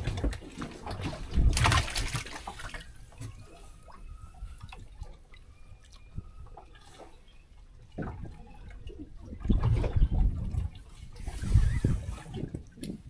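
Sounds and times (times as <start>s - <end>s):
water dripping and trickling: 1.5s - 3.2s.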